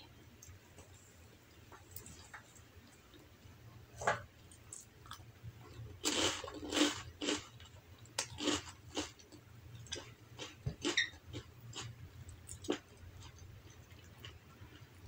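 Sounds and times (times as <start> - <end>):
person chewing food: 4.4 - 15.0.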